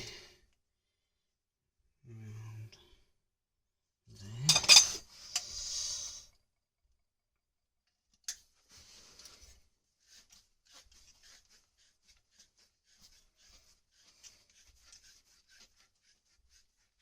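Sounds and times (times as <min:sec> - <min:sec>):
hand tool scraping copper pipe: 0:10.1 - 0:17.0.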